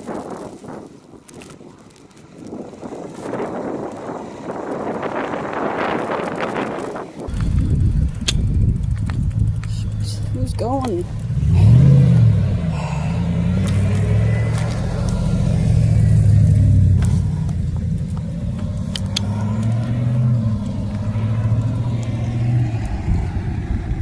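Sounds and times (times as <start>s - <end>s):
car engine running: 2.8s - 24.0s
sharp clicks: 6.0s - 12.3s, 13.6s - 23.2s.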